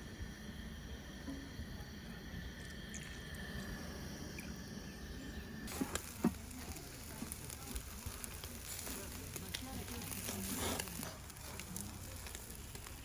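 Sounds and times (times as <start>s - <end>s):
food sizzling in a pan: 5.7s - 13.0s
pops and crackles: 5.7s - 13.0s.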